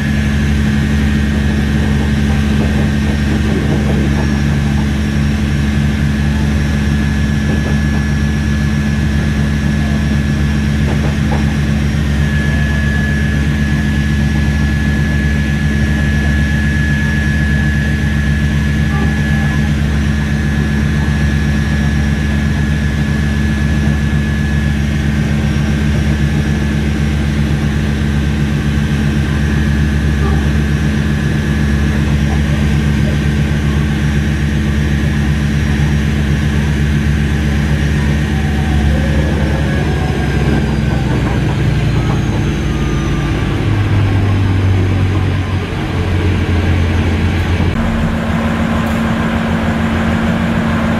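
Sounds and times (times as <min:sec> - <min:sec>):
thin high whine: 0:00.0 - 0:24.8, 0:46.3 - 0:50.9
diesel engine exhaust running: 0:00.0 - 0:50.9.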